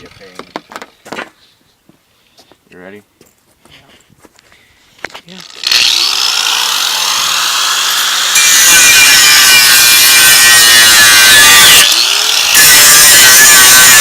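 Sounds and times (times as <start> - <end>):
angle grinder cutting steel: 5.3 - 14.0.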